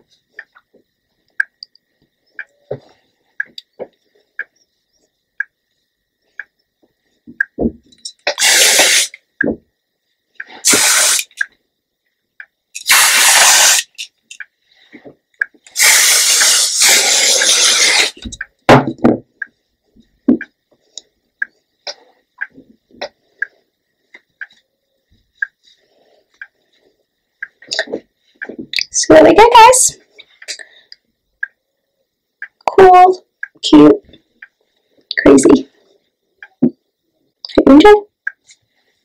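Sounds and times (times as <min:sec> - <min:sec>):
aerosol spray hissing: 0:08.3 - 0:09.2, 0:10.6 - 0:11.4, 0:12.8 - 0:14.0, 0:15.8 - 0:18.2.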